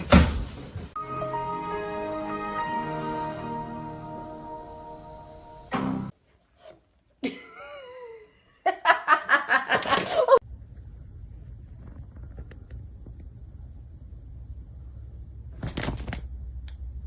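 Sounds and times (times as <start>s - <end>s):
person laughing: 7.2s - 10.4s
low hum: 10.4s - 15.6s.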